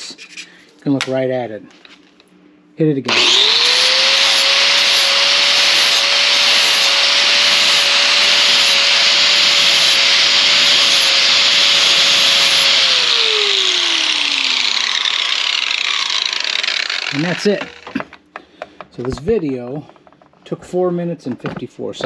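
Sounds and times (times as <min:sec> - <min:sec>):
sanding disc grinding steel: 0:03.1 - 0:18.0
power tool motor whine: 0:03.1 - 0:18.1.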